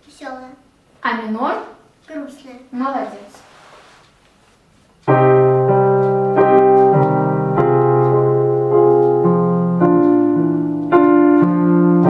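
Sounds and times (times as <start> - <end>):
piano melody over chords: 5.0 - 12.0.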